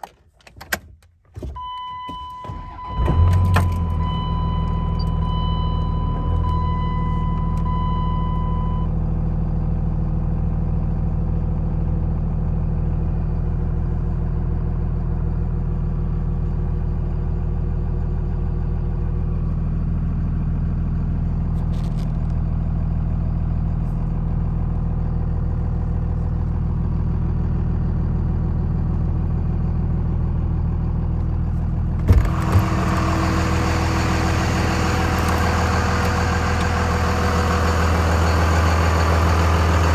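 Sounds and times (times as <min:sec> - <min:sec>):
diesel engine idling: 0:02.6 - 0:39.9.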